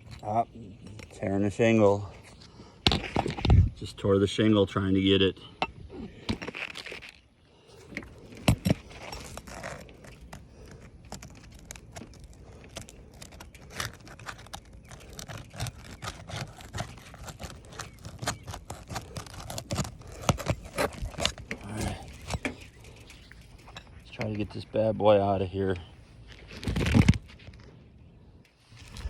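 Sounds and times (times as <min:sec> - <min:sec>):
shingles scraping and clicking: 0:00.0 - 0:03.7, 0:06.0 - 0:24.5.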